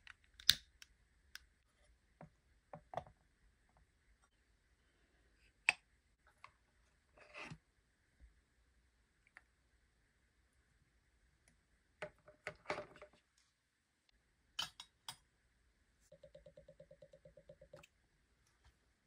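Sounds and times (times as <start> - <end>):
metal cookware clinking: 14.6 - 15.0.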